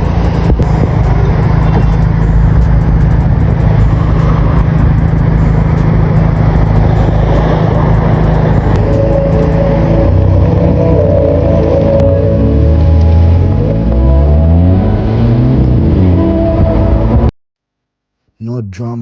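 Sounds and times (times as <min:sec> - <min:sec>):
car exhaust running: 0:00.0 - 0:17.2
music: 0:05.6 - 0:17.3.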